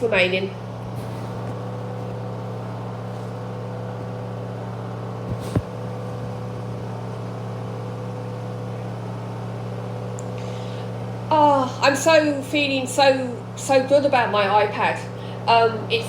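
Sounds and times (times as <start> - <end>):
washing machine spinning: 0.0 - 16.0.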